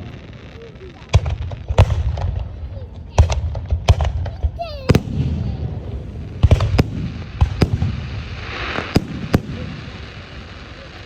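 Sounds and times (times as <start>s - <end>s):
firework hiss: 0.0s - 11.0s
firework shells bursting: 3.2s - 10.5s
low rolling rumble: 4.4s - 10.4s.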